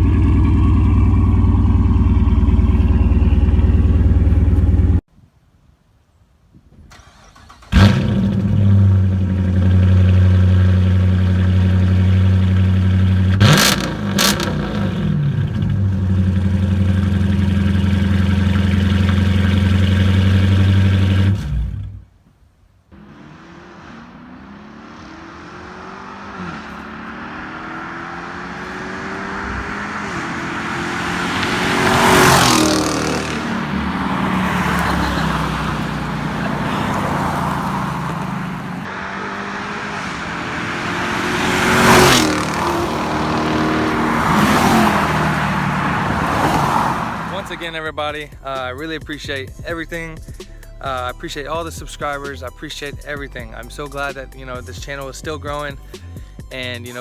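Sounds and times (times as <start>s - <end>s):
car engine idling: 0.0s - 5.0s, 6.9s - 22.0s, 22.9s - 56.7s
engine revving: 7.0s - 22.0s, 23.0s - 48.0s
car driving past: 23.0s - 47.7s.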